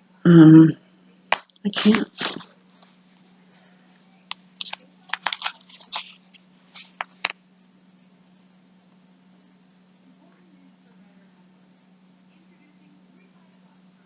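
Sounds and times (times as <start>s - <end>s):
faint steady hum: 0.0s - 14.0s
packaging crinkling: 1.3s - 2.5s, 4.6s - 7.4s.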